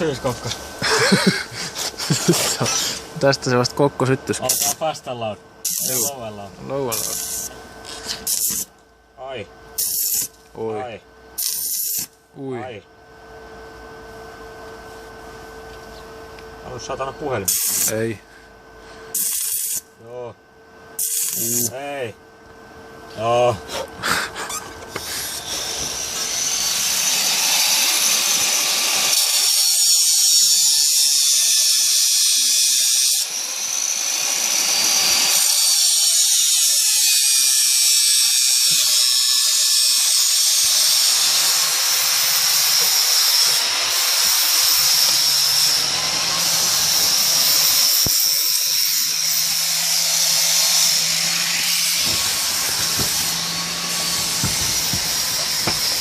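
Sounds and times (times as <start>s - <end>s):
angle grinder on metal: 0.0s - 5.0s, 5.6s - 8.7s, 9.8s - 10.4s, 11.4s - 12.2s, 17.4s - 18.1s, 19.1s - 19.9s, 21.0s - 21.8s, 23.6s - 56.0s.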